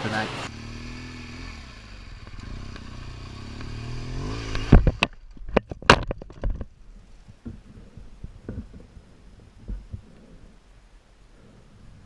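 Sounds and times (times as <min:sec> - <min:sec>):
motorcycle engine running: 0:00.0 - 0:05.2.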